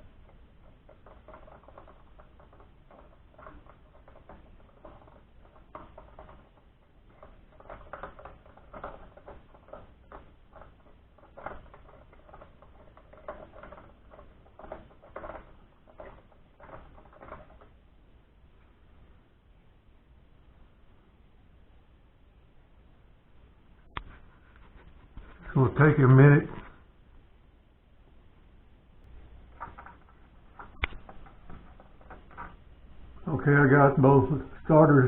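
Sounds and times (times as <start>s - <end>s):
plastic clicks and scraping: 29.5s - 32.6s.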